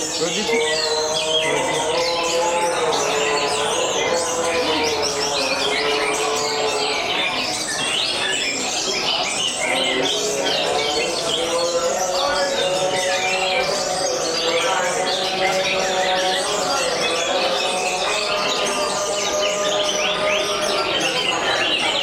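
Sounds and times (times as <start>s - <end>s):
canaries singing: 0.0s - 22.0s.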